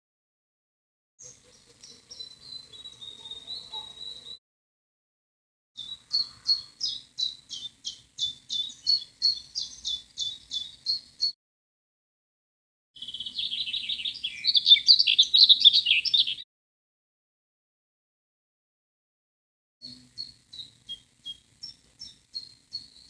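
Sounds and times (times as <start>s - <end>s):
jumbled bird warbling: 1.2s - 4.4s, 5.8s - 11.1s, 13.0s - 16.4s.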